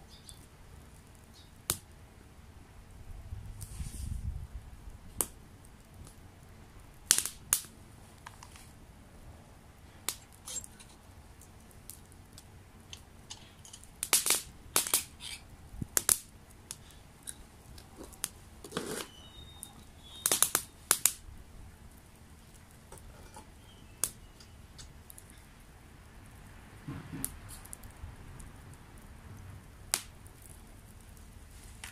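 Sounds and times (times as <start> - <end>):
campfire crackling and popping: 0.0 - 31.9.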